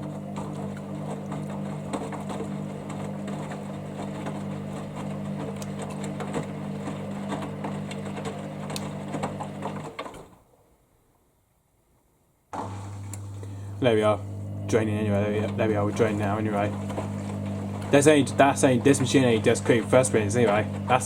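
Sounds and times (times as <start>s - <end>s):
water and laundry sloshing: 0.0s - 10.0s, 14.2s - 21.0s
washing machine motor hum: 0.0s - 10.4s, 12.6s - 21.0s.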